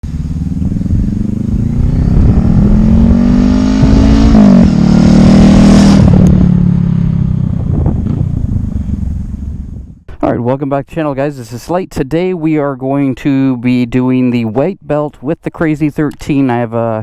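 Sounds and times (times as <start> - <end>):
motorcycle engine accelerating: 0.0 - 10.1.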